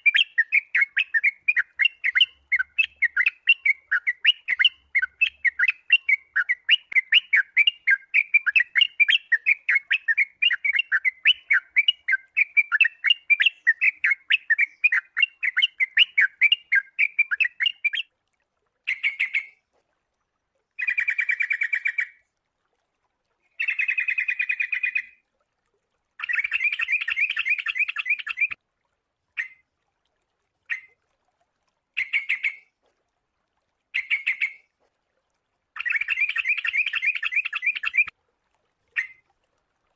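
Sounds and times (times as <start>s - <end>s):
bird chirping and chattering: 0.1s - 18.0s, 23.6s - 25.2s, 26.2s - 28.6s, 32.0s - 32.6s, 34.0s - 34.6s, 35.8s - 38.1s.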